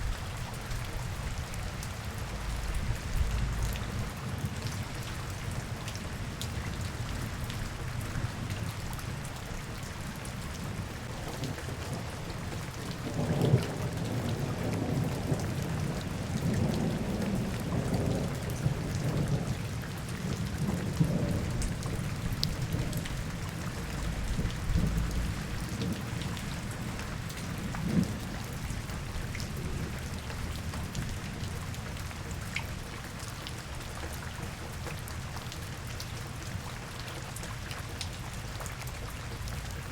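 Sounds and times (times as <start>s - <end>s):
low rumble of thunder: 0.0s - 9.4s, 10.3s - 32.4s
steady rain falling: 0.0s - 39.9s.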